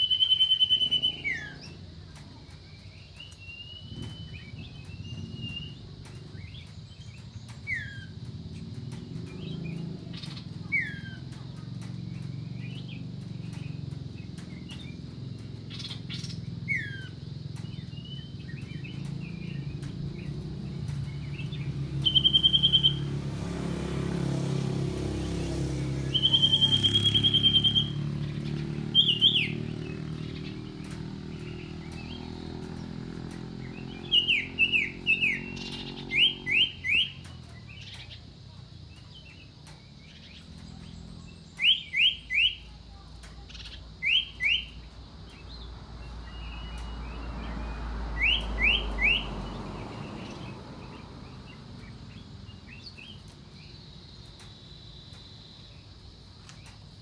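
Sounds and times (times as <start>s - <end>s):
bird whistling calls: 0.0s - 1.8s, 12.3s - 23.2s, 25.9s - 32.9s, 33.6s - 38.2s, 40.8s - 44.9s, 46.2s - 53.2s.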